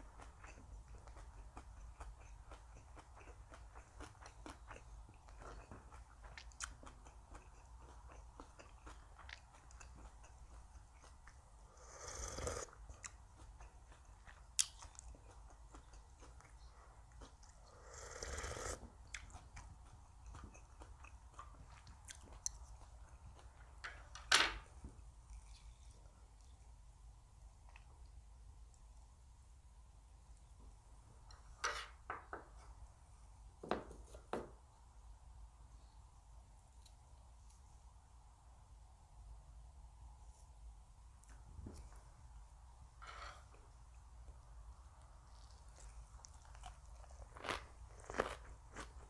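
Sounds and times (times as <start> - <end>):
chewing food close up: 0.0 - 28.9, 43.3 - 49.0.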